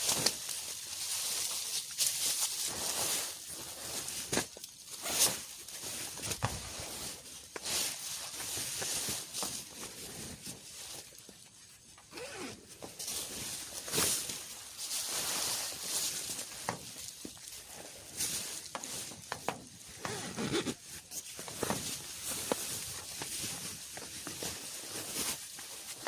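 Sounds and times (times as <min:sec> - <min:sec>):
rustling and rasping handling: 0:00.0 - 0:26.0.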